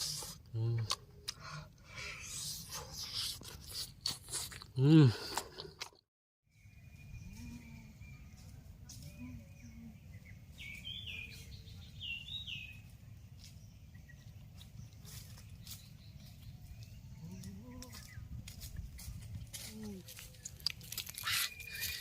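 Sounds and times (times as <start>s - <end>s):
bird chirping: 6.5s - 19.3s, 20.2s - 22.0s.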